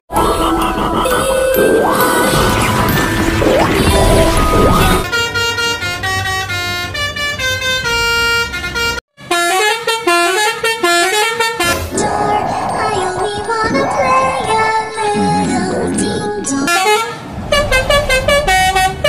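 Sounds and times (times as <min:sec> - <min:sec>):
multi-tone bus horn melody: 0:00.1 - 0:02.4, 0:05.0 - 0:12.0, 0:16.4 - 0:19.0.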